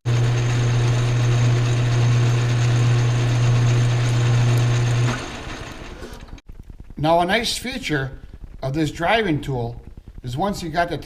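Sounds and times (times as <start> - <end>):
metal lathe motor hum: 0.1 - 6.4.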